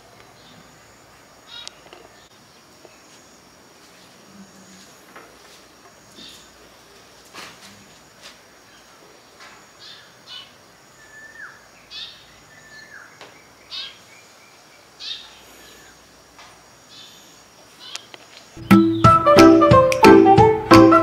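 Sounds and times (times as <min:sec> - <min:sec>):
birds chirping: 0:08.6 - 0:16.1, 0:16.9 - 0:19.7
downward-sliding whistled bird notes: 0:18.6 - 0:21.0.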